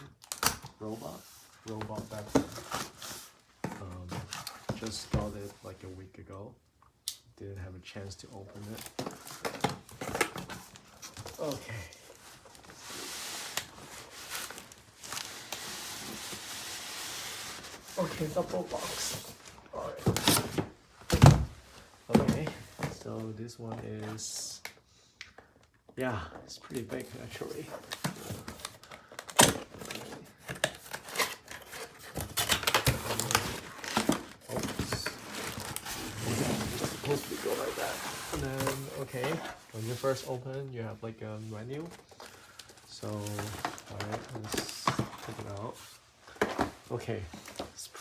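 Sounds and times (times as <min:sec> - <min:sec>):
cardboard scraping and rustling: 0:00.8 - 0:05.6, 0:08.4 - 0:23.2, 0:26.8 - 0:40.5, 0:41.5 - 0:48.0
cardboard box being opened: 0:26.9 - 0:40.3.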